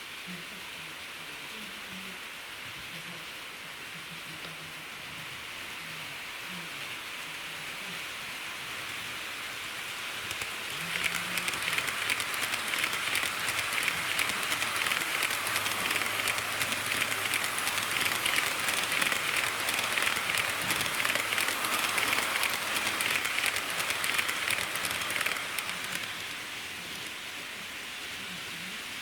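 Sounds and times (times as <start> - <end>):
model train wheels clattering: 10.2 - 27.2.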